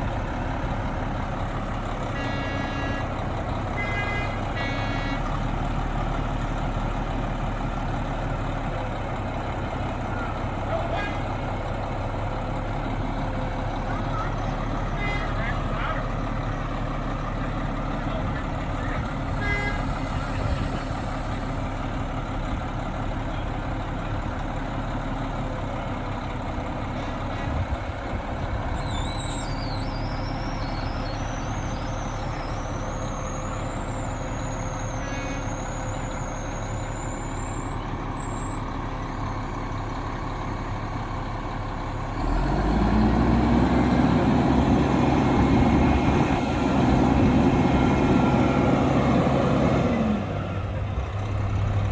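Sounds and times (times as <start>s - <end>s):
large engine running: 0.0s - 51.9s.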